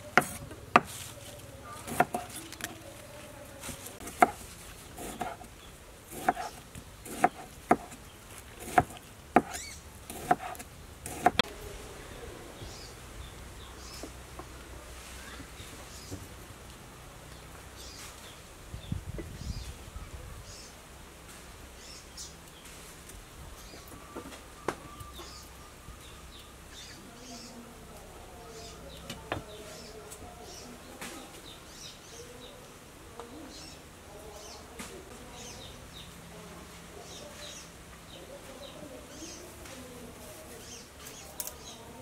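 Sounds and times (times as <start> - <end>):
small birds chirping: 0.0 - 16.5, 17.2 - 20.9, 21.6 - 42.0.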